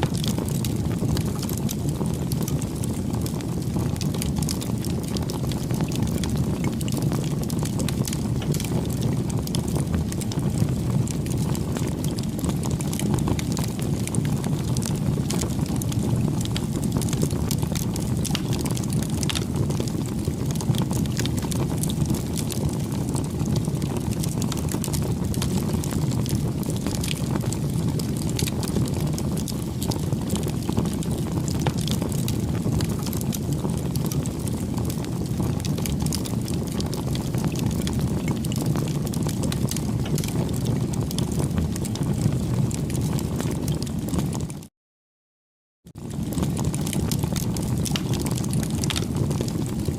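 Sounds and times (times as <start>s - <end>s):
bonfire crackling and rushing: 0.0s - 44.7s, 45.9s - 49.9s.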